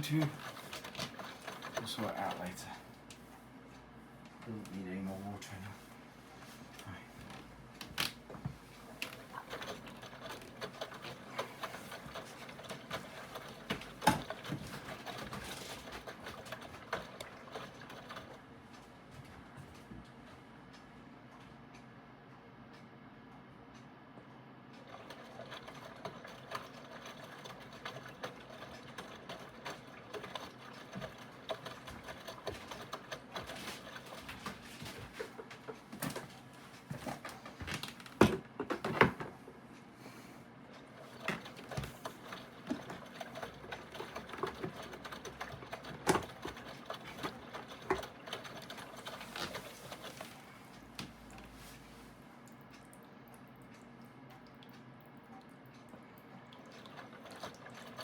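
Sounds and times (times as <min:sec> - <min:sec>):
washing machine running: 0:00.0 - 0:58.0
washing machine clicks and knocks: 0:07.8 - 0:18.2, 0:37.0 - 0:39.6, 0:41.1 - 0:49.0.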